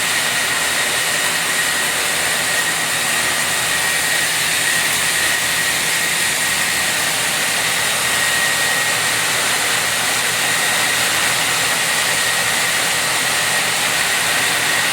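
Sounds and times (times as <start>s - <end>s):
wire saw hissing with high whine: 0.0s - 14.9s.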